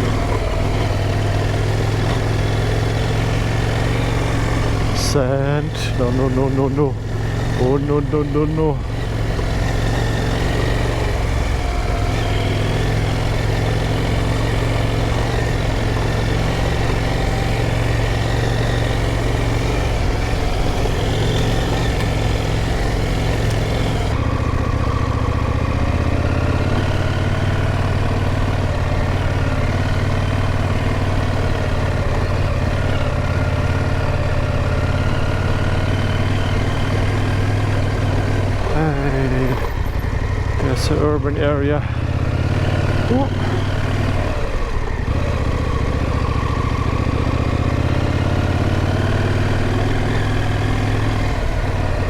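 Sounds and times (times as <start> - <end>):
motorcycle engine at low revs: 0.0 - 52.0.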